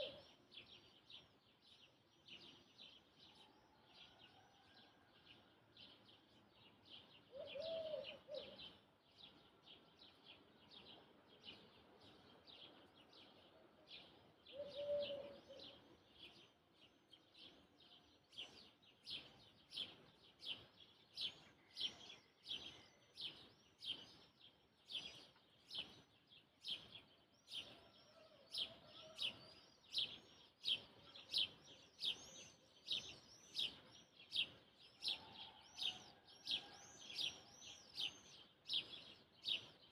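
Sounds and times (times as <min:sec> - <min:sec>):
lower bird calls: 0:00.0 - 0:00.4, 0:07.3 - 0:08.9, 0:14.5 - 0:16.3
bird chirping: 0:00.0 - 0:04.2, 0:05.8 - 0:39.9.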